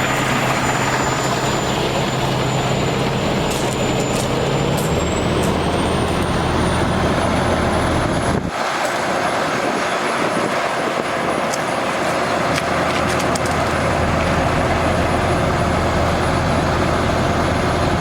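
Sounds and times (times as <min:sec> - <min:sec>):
high-pitched whine: 0:00.0 - 0:08.5
diesel engine running: 0:00.0 - 0:18.0
water rushing hiss: 0:08.5 - 0:17.5.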